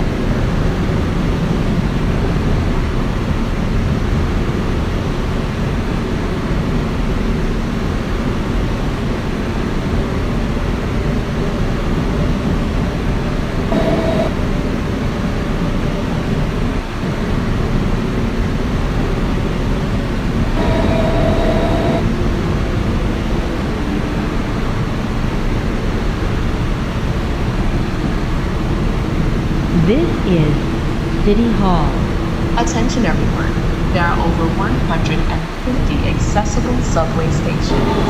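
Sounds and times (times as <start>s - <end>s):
subway wheels rumbling on rail: 0.0s - 38.0s
motor whine: 13.5s - 14.6s, 20.4s - 22.0s.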